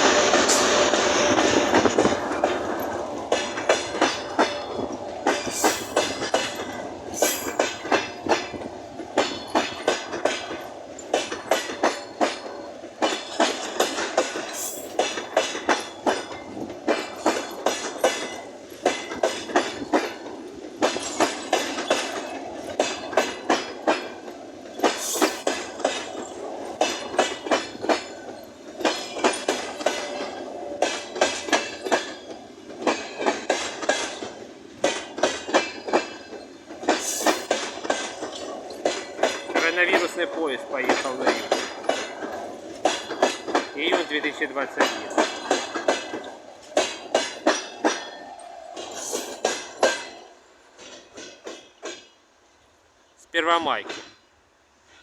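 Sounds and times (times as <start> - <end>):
train wheels clattering over joints: 0.0 - 52.7, 53.4 - 55.0
train rolling rumble: 0.0 - 55.0.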